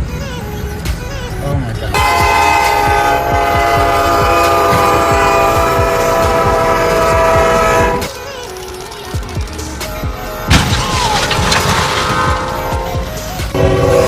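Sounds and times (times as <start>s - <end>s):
locomotive air horn blast: 1.9s - 8.1s, 10.2s - 10.7s, 11.9s - 14.0s.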